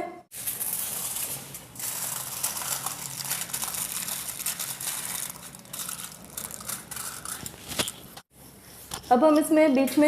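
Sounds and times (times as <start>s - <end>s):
wrapping sheet crinkling: 0.4s - 8.2s.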